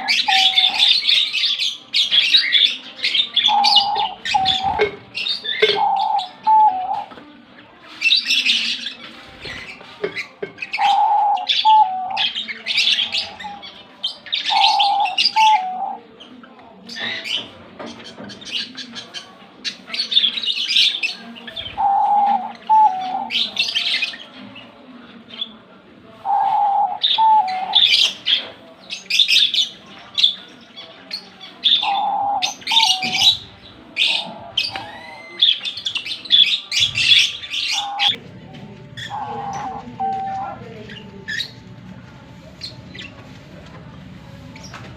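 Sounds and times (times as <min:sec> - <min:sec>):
dove cooing: 0:00.0 - 0:01.1, 0:03.4 - 0:07.1, 0:10.7 - 0:13.6, 0:14.5 - 0:16.0, 0:21.6 - 0:23.8, 0:26.2 - 0:28.0, 0:31.8 - 0:35.5, 0:36.8 - 0:38.2, 0:39.0 - 0:40.8
small birds chirping: 0:00.0 - 0:38.2, 0:39.0 - 0:41.6.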